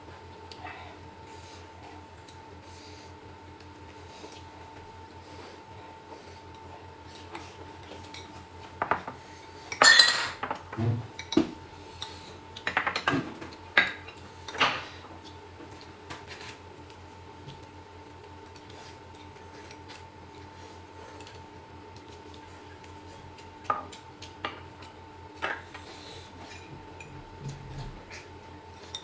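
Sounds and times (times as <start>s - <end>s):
cutlery clinking against dishes: 9.8s - 10.4s.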